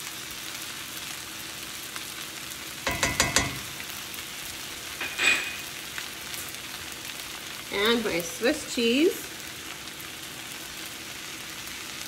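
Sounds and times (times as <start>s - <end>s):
food sizzling in a skillet: 0.0s - 12.0s
utensil clinking against pan: 2.9s - 3.8s, 5.0s - 5.7s.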